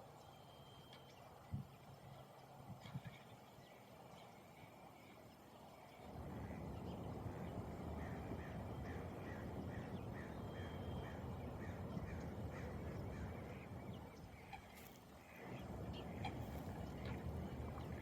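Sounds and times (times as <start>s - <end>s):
bird calling: 6.2s - 18.0s.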